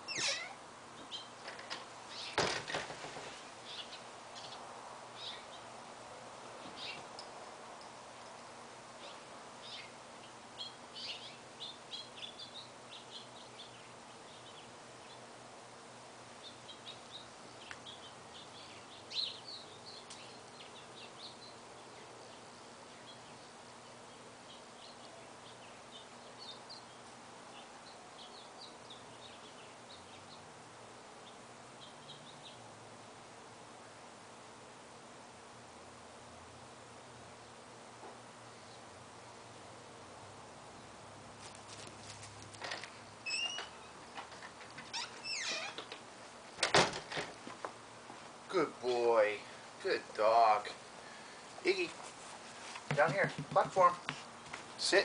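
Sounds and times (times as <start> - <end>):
small birds chirping: 0.0 - 2.6, 3.3 - 5.8, 6.6 - 32.8, 37.1 - 39.8
faint background noise: 0.0 - 55.0.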